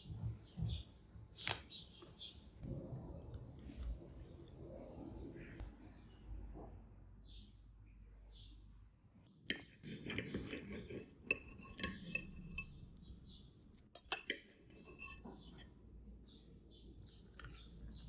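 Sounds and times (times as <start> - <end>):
cutlery and dishes clinking: 9.5 - 12.8, 13.9 - 15.7, 17.3 - 17.8.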